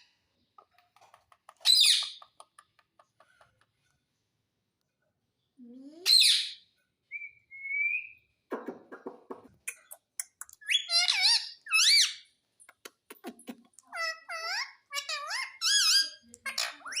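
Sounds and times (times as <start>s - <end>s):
parrot raspy chatter: 9.6s - 17.0s
parrot screeching: 13.9s - 17.0s.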